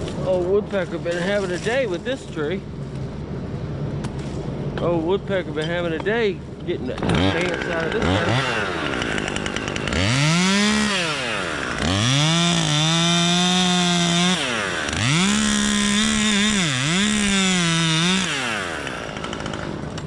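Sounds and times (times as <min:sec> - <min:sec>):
chainsaw revving: 0:06.9 - 0:20.0.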